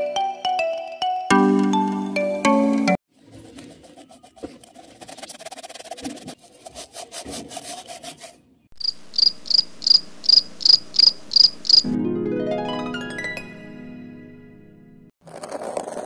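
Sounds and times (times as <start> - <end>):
plastic cup scraping in sand: 3.1 - 8.5, 15.2 - 16.0
cricket chirping: 8.8 - 11.9.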